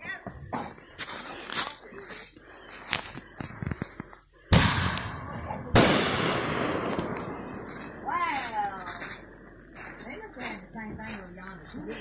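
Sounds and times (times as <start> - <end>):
fireworks bangs with echo: 4.5 - 8.2.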